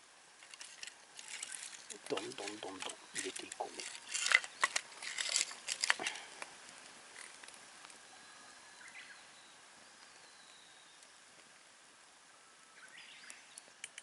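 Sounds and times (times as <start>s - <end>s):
sticks snapping in campfire: 0.4s - 8.0s, 13.2s - 14.0s.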